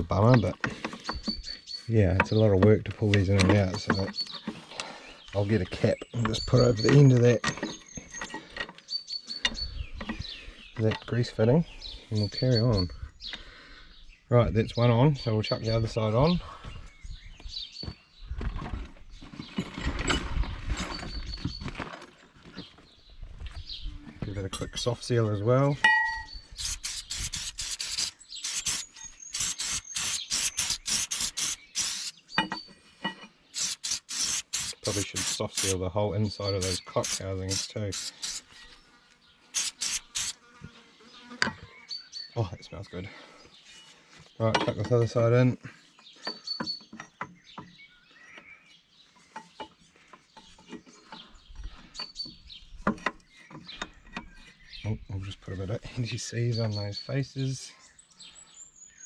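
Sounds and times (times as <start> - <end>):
small birds chirping: 0.0 - 59.0
aerosol can spraying bursts: 26.6 - 32.2, 33.6 - 35.8, 36.6 - 38.5, 39.6 - 40.4.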